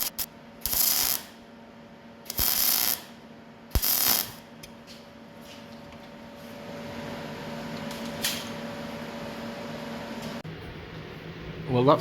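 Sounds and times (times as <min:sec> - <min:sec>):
welder bursts: 0:00.0 - 0:01.4, 0:02.3 - 0:04.5.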